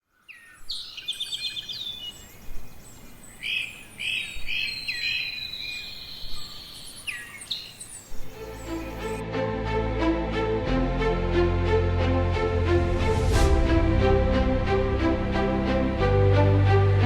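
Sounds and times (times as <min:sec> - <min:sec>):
bird trill: 0:00.2 - 0:09.2.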